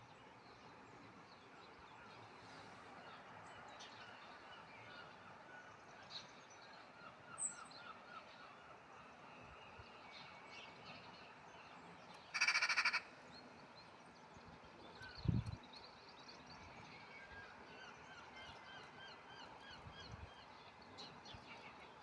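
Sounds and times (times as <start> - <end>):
loud rattling bird call: 12.3 - 13.1.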